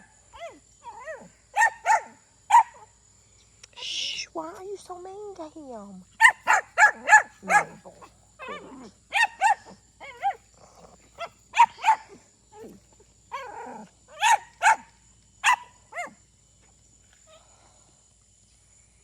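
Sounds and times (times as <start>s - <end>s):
dog barking: 0.0s - 2.9s, 6.2s - 16.2s.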